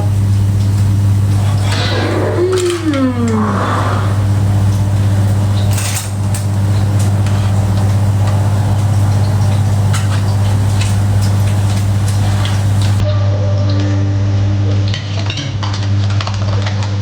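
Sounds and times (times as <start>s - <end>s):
low mechanical hum: 0.0s - 13.1s
faint clicks: 0.2s - 13.0s.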